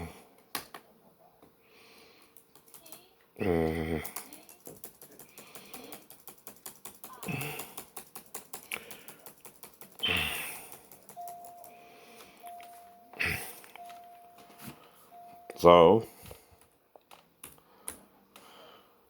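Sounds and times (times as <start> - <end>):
rapid computer clicking: 2.2 - 3.1, 4.0 - 12.4
faint steady tone: 11.1 - 16.5.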